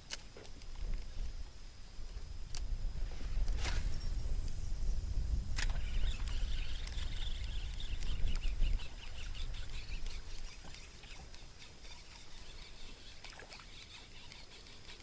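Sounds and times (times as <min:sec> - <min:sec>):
faint bird chirps: 0:03.3 - 0:15.0.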